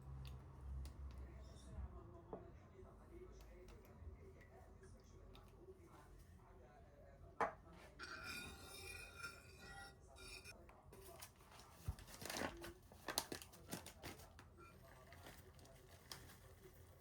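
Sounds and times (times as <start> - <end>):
rustling and crinkling: 11.0 - 17.0.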